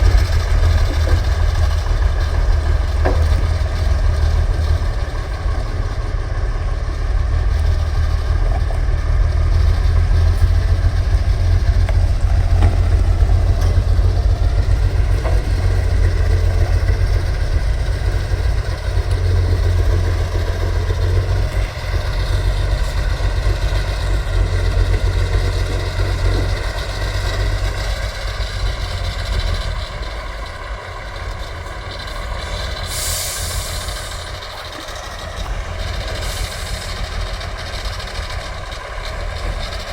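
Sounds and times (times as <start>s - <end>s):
diesel engine rumbling: 0.0s - 39.9s
short hiss: 32.9s - 34.3s.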